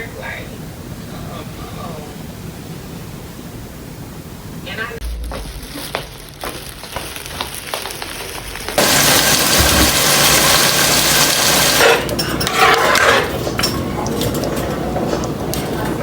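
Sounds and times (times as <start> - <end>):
steady rushing noise: 4.6 - 8.8
dishes and glassware clinking: 11.8 - 16.0.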